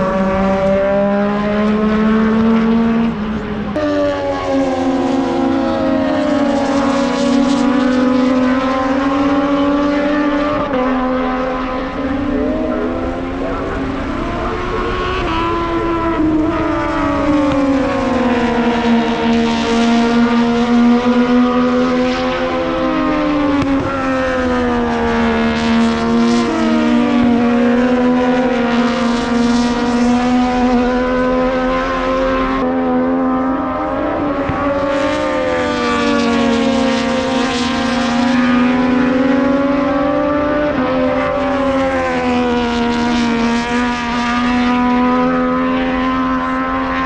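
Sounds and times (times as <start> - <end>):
racing motorcycle engine revving: 0.0 - 47.0.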